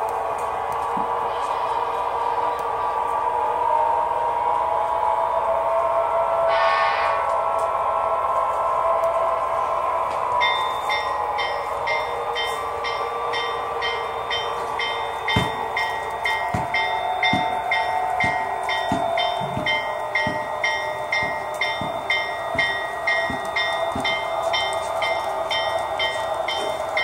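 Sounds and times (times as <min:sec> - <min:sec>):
locomotive bell ringing: 0:10.4 - 0:27.0
wheels clicking over track joints: 0:15.3 - 0:27.0.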